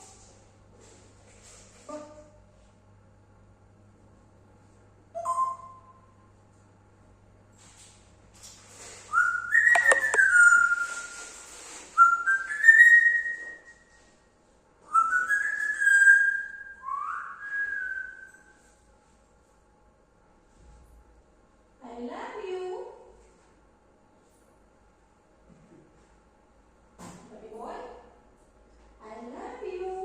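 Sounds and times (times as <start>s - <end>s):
parrot whistling: 9.1s - 11.1s, 12.0s - 13.6s, 14.9s - 18.3s.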